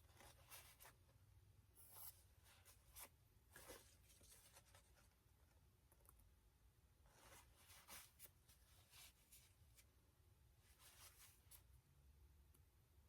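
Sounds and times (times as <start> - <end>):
hands scraping and rustling objects: 7.1 - 9.9.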